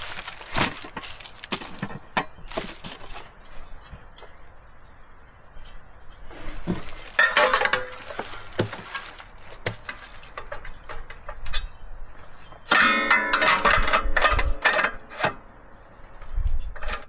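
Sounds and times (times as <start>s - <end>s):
clinks and knocks: 0.0s - 3.3s, 6.6s - 11.6s, 12.7s - 15.4s.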